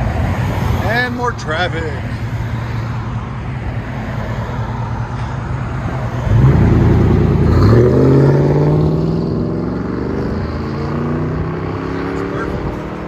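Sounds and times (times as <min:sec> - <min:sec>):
truck engine revving: 0:06.2 - 0:13.0.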